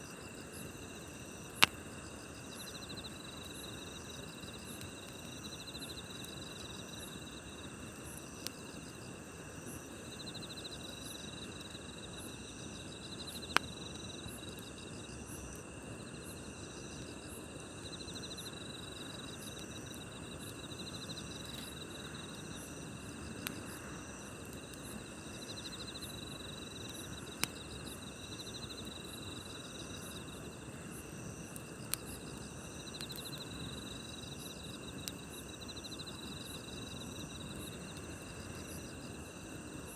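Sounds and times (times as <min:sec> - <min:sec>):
fire popping: 0:00.0 - 0:10.2, 0:18.8 - 0:39.9
campfire hissing: 0:00.0 - 0:39.9
crickets chirping: 0:00.0 - 0:39.9.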